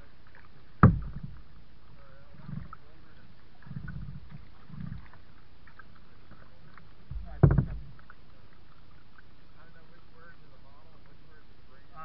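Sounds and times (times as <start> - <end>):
kayak paddle splashes: 0.0 - 12.0
sharp knock: 0.8 - 1.2.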